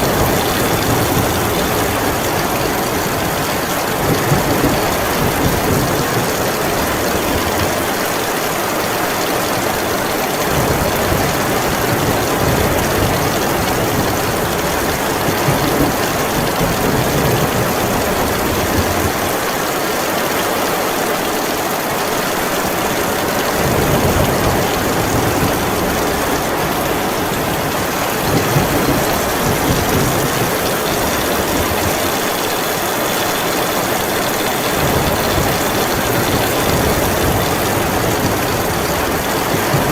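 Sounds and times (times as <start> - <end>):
thunder rumbling: 0.0 - 7.9, 23.2 - 39.9
heavy rain: 0.0 - 39.9.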